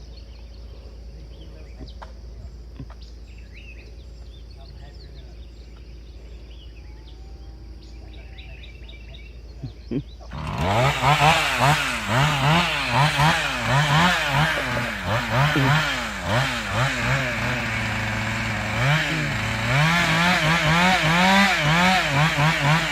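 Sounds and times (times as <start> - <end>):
chainsaw engine revving: 10.3 - 22.9.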